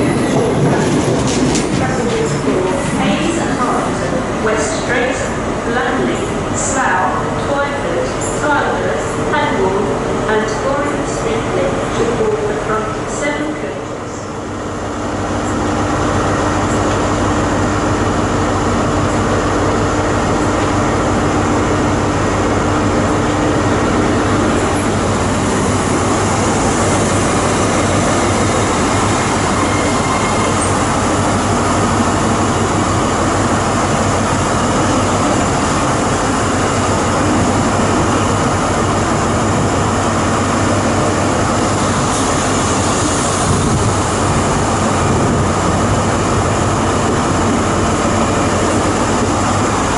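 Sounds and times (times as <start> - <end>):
train rumbling: 0.0 - 49.9.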